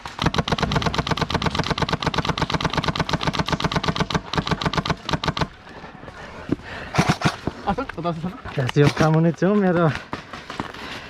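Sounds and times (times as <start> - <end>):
airsoft rifle firing full-auto: 0.0 - 5.5.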